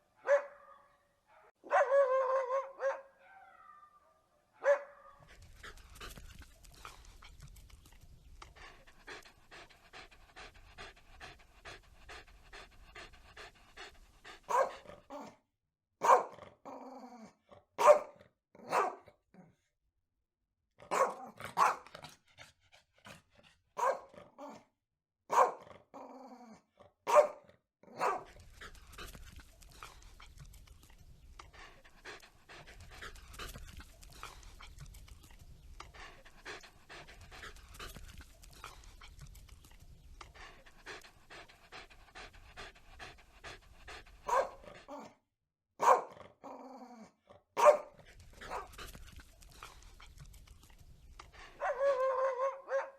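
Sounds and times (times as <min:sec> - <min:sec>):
dog barking: 0:00.0 - 0:05.3, 0:14.5 - 0:15.4, 0:16.0 - 0:16.4, 0:17.8 - 0:19.2, 0:20.8 - 0:21.9, 0:23.8 - 0:24.7, 0:25.3 - 0:25.7, 0:27.1 - 0:28.4, 0:44.2 - 0:45.2, 0:45.8 - 0:46.2, 0:47.6 - 0:48.7, 0:51.6 - 0:52.9
dog panting: 0:05.2 - 0:15.3, 0:21.4 - 0:24.2, 0:28.0 - 0:45.2, 0:47.6 - 0:52.3.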